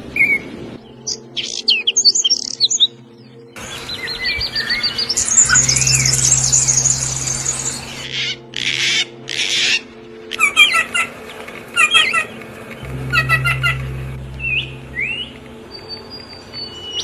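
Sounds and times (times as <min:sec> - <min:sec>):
songbirds singing: 0:00.2 - 0:17.0
steady low hum: 0:05.1 - 0:08.0, 0:12.8 - 0:16.8.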